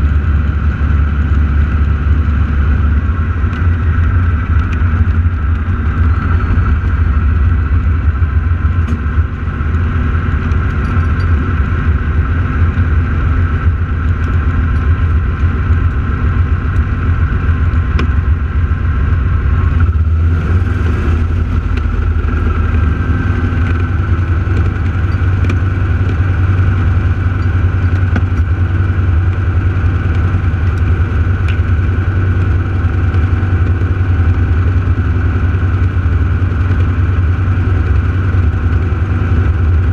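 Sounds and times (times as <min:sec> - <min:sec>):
airplane piston engines droning: 0:00.0 - 0:39.9.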